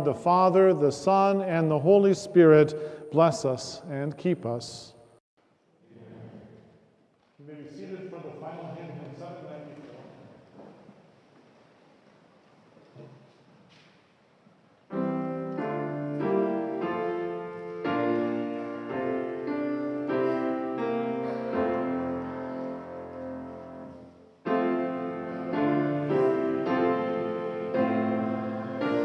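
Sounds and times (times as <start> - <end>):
keyboard playing hymn chords: 14.9 - 29.0.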